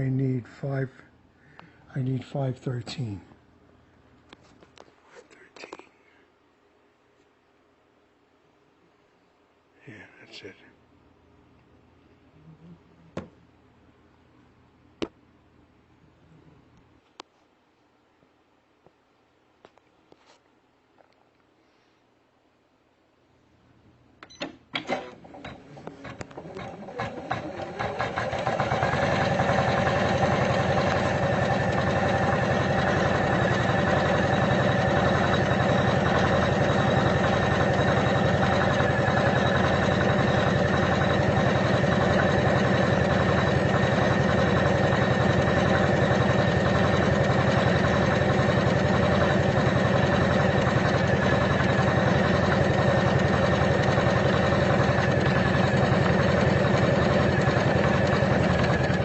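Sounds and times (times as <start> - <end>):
embroidery machine stitching: 24.8 - 59.0.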